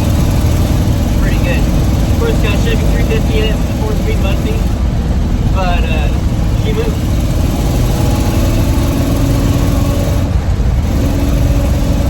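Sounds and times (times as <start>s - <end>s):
pickup truck engine running: 0.0s - 12.0s.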